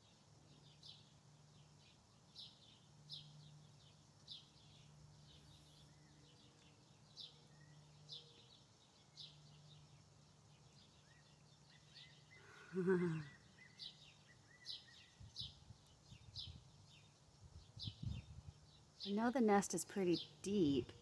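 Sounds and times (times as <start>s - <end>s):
high down-slurred bird chirp: 10.8s - 21.0s
lower falling bird call: 12.3s - 15.0s.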